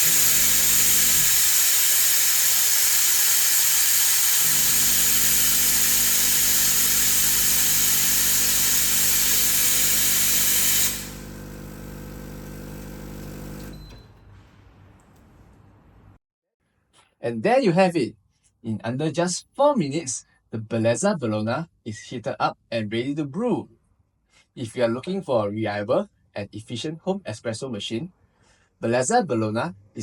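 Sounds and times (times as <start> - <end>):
steam wand hissing: 0.0 - 13.7
espresso machine pump humming: 0.0 - 14.0.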